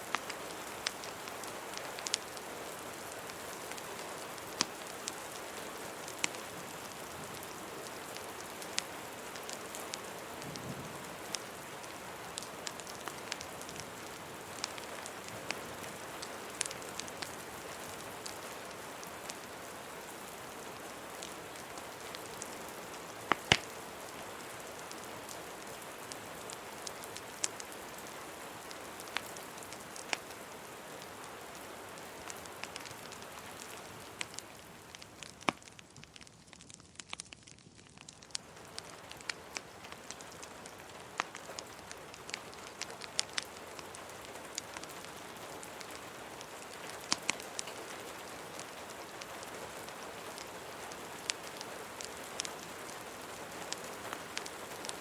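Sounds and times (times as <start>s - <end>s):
rain hissing: 0.0s - 37.0s
wood fire popping and crackling: 0.0s - 55.0s.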